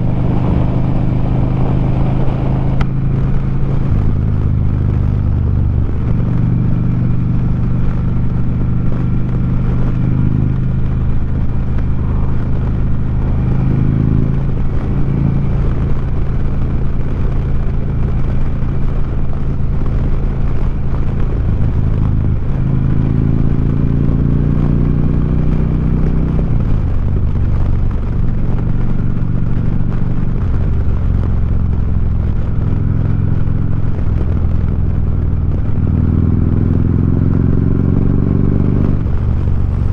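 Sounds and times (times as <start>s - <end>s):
motorcycle engine running: 0.0s - 39.9s
wind rushing past microphone: 0.0s - 39.9s.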